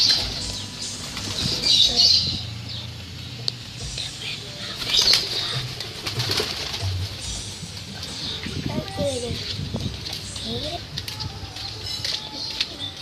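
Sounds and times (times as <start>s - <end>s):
pigeon wings flapping: 4.8s - 7.2s.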